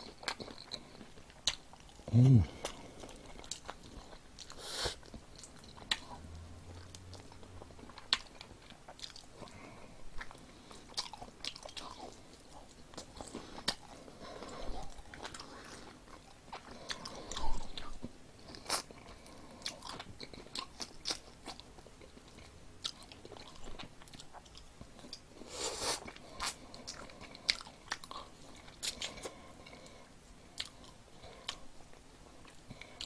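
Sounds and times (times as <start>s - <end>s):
person chewing crispy food: 0.0s - 33.0s.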